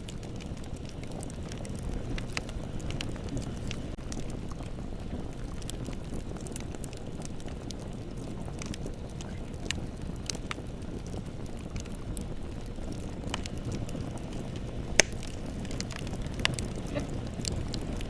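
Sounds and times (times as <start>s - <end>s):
bonfire flames rumbling: 0.0s - 18.0s
fire crackles and pops: 0.0s - 18.0s.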